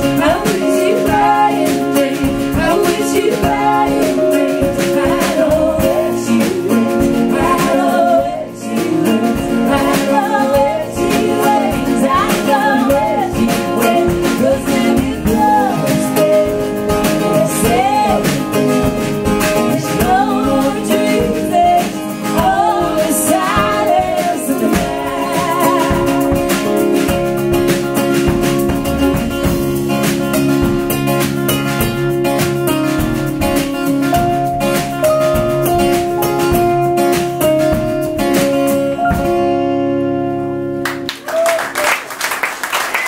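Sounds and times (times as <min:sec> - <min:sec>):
person singing: 0:00.0 - 0:27.1
strummed acoustic guitar: 0:00.0 - 0:40.8.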